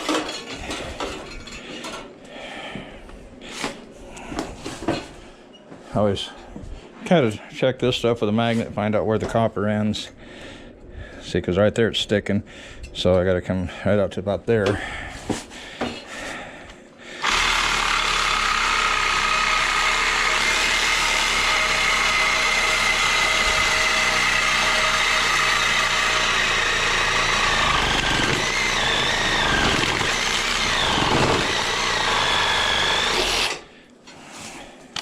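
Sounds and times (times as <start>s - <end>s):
power saw cutting metal coil: 17.2s - 33.7s.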